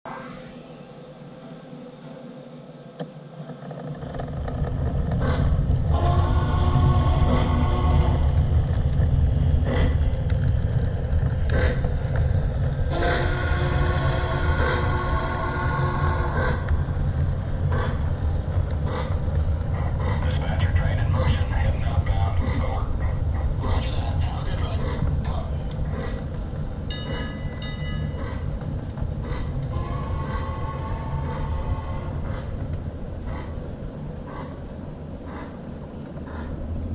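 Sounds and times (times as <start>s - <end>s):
toy steam locomotive chugging: 5.2s - 10.6s, 11.4s - 17.1s, 26.9s - 32.6s
steam whistle: 5.9s - 8.4s, 12.9s - 16.6s, 29.7s - 32.2s.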